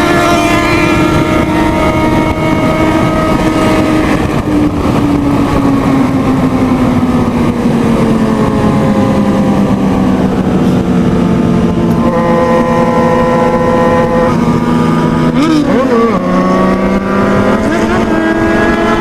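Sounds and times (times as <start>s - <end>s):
motorcycle engine running hard: 0.0s - 19.0s
wind rushing: 0.0s - 19.0s.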